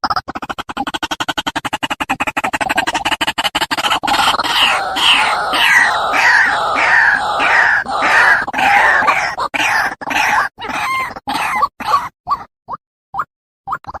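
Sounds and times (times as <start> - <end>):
waterhen calling: 4.1 - 11.1.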